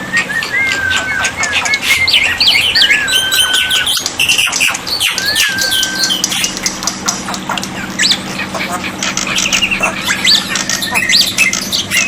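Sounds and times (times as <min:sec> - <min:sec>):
mynas whistling and chirping: 0:00.0 - 0:06.7, 0:07.8 - 0:12.0.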